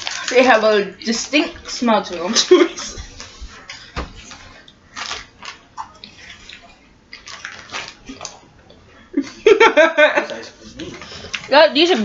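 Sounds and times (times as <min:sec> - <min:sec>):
snack being chewed: 0:03.1 - 0:08.8.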